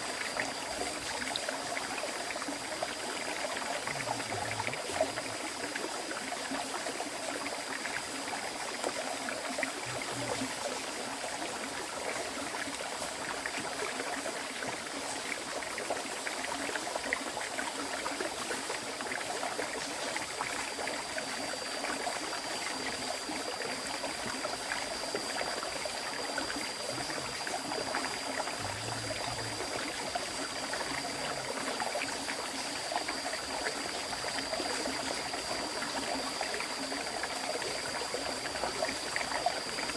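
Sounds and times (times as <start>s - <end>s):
thin steady high tone: 19.4s - 39.9s
river flowing: 20.4s - 39.9s.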